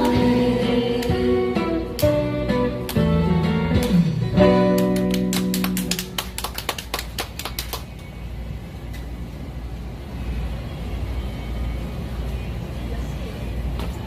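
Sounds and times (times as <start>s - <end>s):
people clapping: 0.0s - 1.3s, 2.8s - 3.2s, 3.8s - 8.2s
low street rumble: 0.0s - 14.0s.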